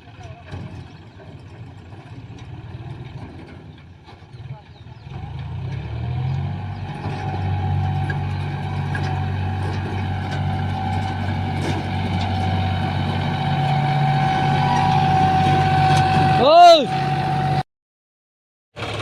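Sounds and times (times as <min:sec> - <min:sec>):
tractor engine running: 0:06.3 - 0:17.6, 0:18.8 - 0:19.0
thin steady whine: 0:07.3 - 0:17.6.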